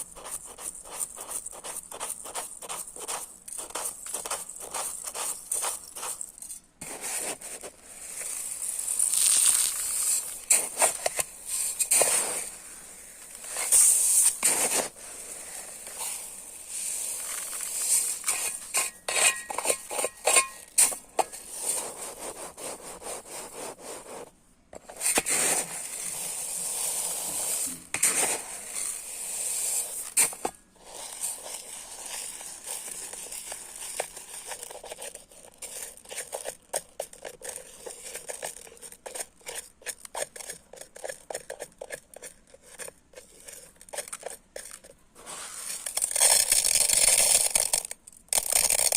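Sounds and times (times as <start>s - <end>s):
rice grains clicking and pattering: 0.0s - 12.6s, 13.2s - 23.8s, 42.9s - 48.9s
rice grains streaming down: 8.0s - 10.4s.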